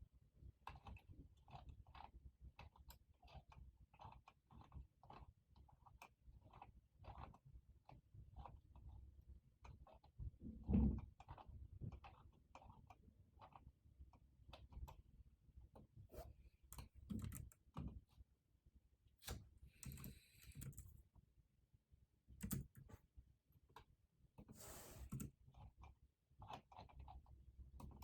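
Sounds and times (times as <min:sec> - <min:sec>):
keyboard keystroke clicks: 0:16.7 - 0:17.9, 0:22.4 - 0:22.9.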